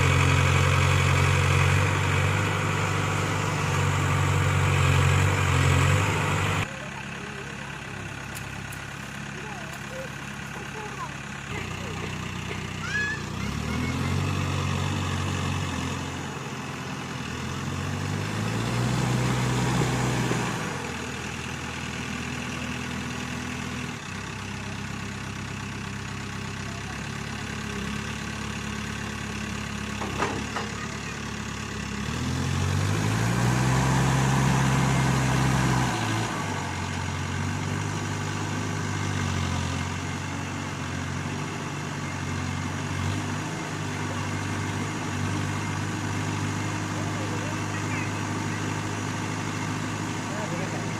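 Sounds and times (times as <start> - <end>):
backhoe diesel engine revving: 0.0 - 50.9.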